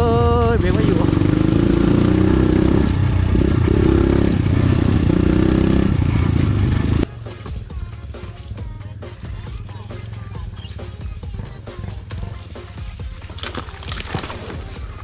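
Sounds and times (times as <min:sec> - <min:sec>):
rattling and rumbling from riding: 0:00.0 - 0:15.0
dirt bike engine revving: 0:00.2 - 0:07.1.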